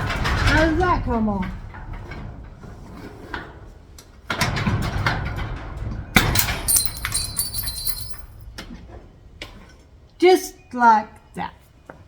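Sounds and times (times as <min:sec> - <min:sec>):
metal lock parts clicking: 0:06.4 - 0:08.3.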